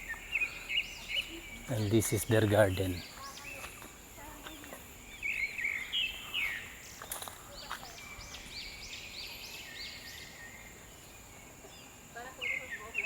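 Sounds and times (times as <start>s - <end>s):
birds chirping and calling: 0.0s - 3.7s.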